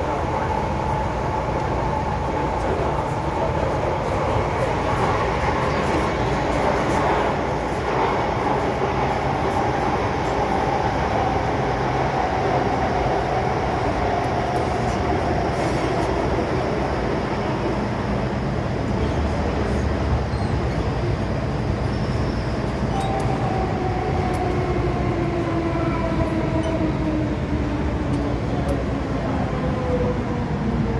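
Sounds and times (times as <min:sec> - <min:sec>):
metro train rumble: 0:00.0 - 0:30.9.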